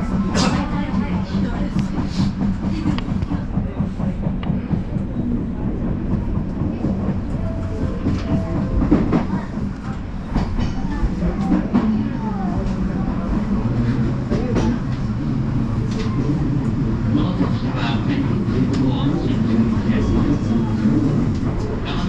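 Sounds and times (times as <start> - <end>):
electric train rumbling on track: 0.0 - 22.0.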